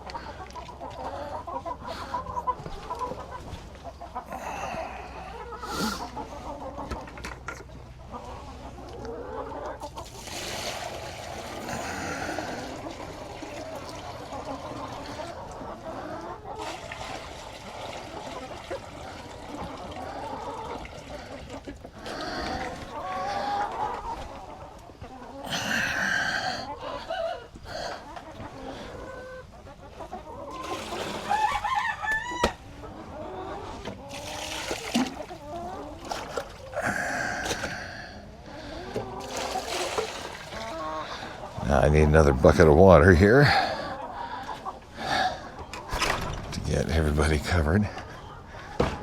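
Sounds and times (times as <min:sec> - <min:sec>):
chickens clucking: 0:00.0 - 0:49.0
rooster crowing: 0:31.2 - 0:32.6.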